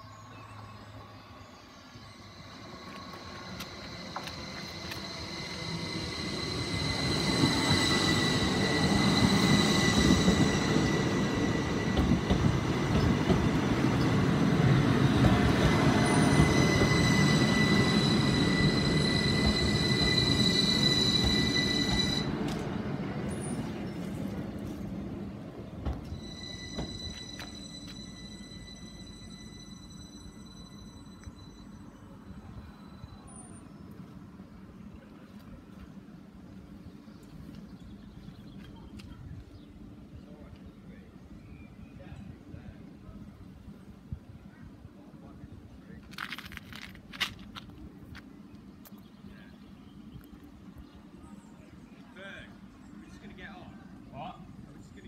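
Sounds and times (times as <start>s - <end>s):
train wheels rumbling on rails: 2.4s - 30.4s, 32.0s - 51.8s
high tone: 26.0s - 33.3s.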